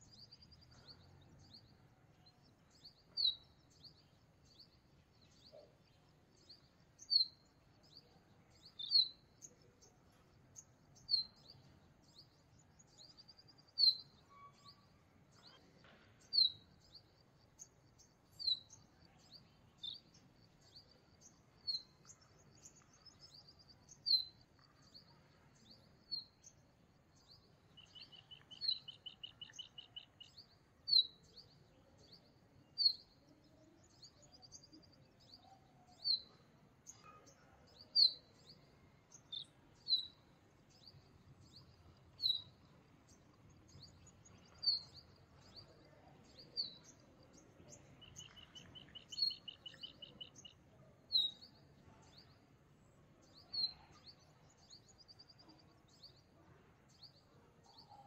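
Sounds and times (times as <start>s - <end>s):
small birds chirping: 0.0s - 58.0s
bird trill: 12.8s - 17.7s, 27.2s - 31.4s, 35.2s - 52.3s.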